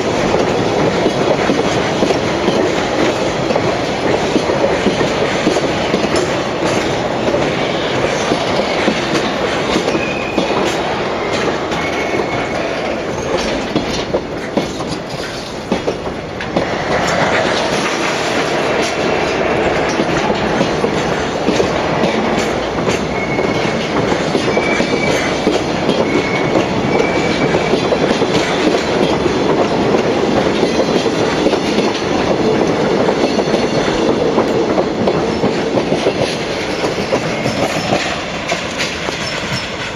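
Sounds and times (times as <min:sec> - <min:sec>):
train wheels clicking over rail joints: 0:00.0 - 0:39.9
high wheel squeals: 0:11.2 - 0:13.3, 0:23.1 - 0:23.8, 0:24.4 - 0:25.4, 0:26.0 - 0:27.7.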